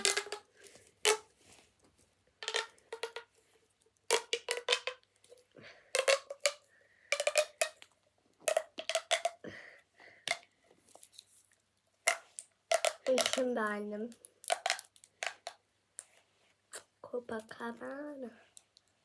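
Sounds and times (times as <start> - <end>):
plastic fidget toys clicking: 0.0 - 1.2, 2.4 - 3.4, 4.1 - 5.1, 5.9 - 9.5, 10.2 - 10.5, 12.1 - 16.1.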